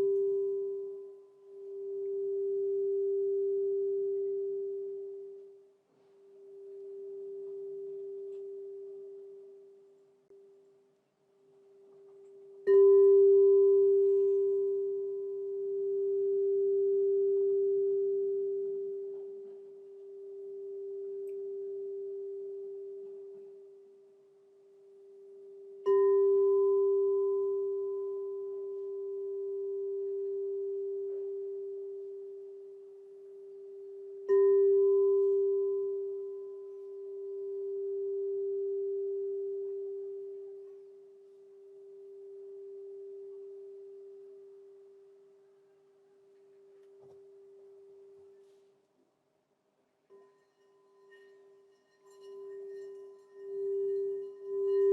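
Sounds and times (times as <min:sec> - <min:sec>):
singing bowl ringing: 0:00.0 - 0:05.7, 0:06.4 - 0:09.9, 0:12.0 - 0:45.4, 0:50.1 - 0:54.9.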